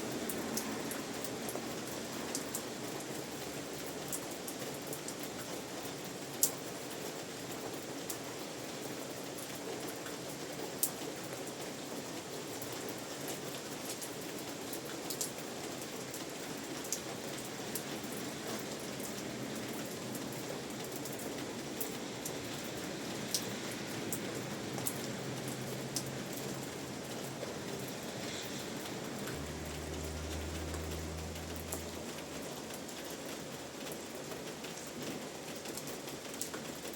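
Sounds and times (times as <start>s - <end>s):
steady rain falling: 0.0s - 36.9s
raindrops tapping: 24.1s - 33.3s.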